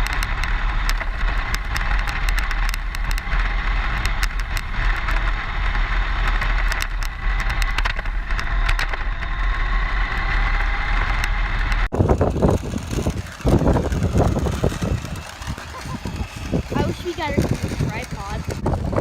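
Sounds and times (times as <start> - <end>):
grit ticking under tyres: 0.0 - 19.0
gusty rumbling: 0.0 - 19.0
vehicle driving on road: 0.0 - 19.0.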